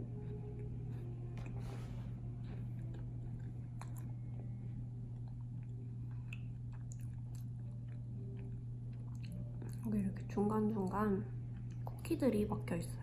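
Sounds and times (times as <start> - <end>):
crunchy chewing: 0.0 - 9.9
steady low hum: 0.0 - 13.0.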